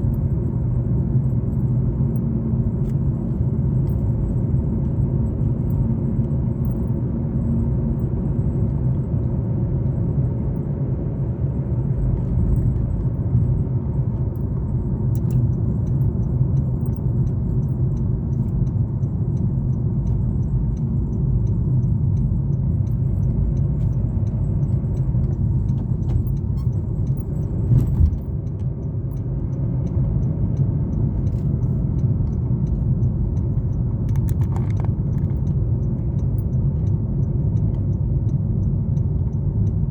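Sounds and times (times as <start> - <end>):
car engine and tyre rumble: 0.0 - 39.9
light rattling clicks: 32.4 - 35.6.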